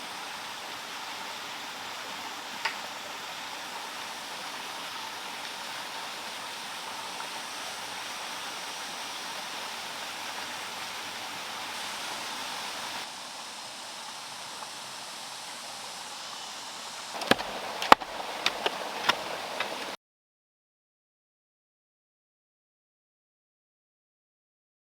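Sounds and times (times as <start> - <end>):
water running: 0.0 - 20.0
sharp knocks: 17.2 - 19.9.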